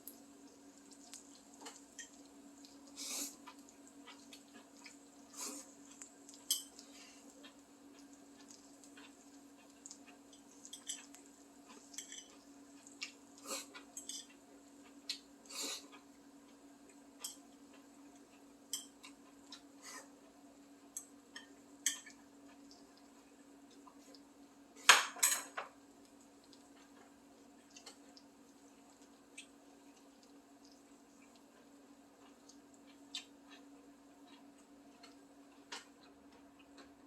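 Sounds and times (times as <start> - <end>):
utensils clinking against dishes: 24.9 - 25.7.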